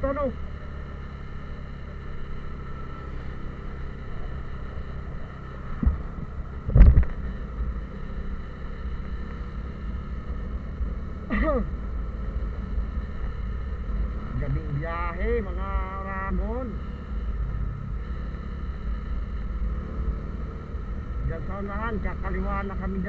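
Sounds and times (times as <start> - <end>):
vehicle engine and road rumble: 0.0 - 23.0
vehicle thumps over bumps: 5.7 - 7.3.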